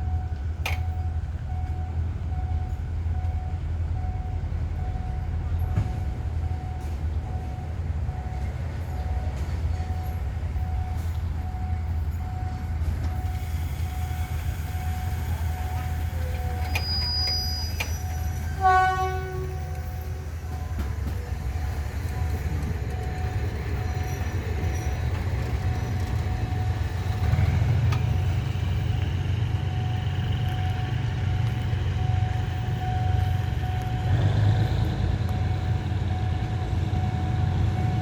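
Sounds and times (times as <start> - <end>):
diesel locomotive idling: 0.0 - 38.0
train horn blast: 17.3 - 20.1.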